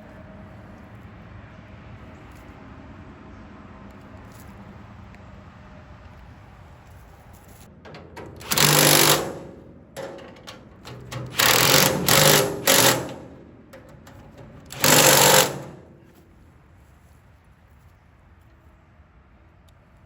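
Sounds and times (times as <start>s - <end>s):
impact driver rattling bursts: 7.7s - 16.2s.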